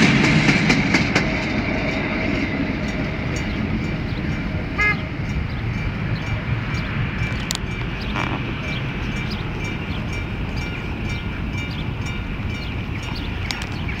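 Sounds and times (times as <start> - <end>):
freight train rumbling past: 0.0 - 14.0
rhythmic train wheel clicks: 0.0 - 14.0.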